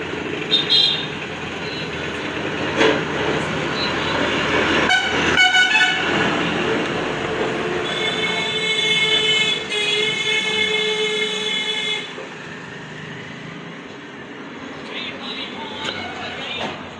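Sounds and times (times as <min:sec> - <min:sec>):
road traffic noise: 0:00.0 - 0:16.9
vehicle horns honking: 0:00.5 - 0:01.1, 0:04.8 - 0:06.2, 0:07.8 - 0:12.2.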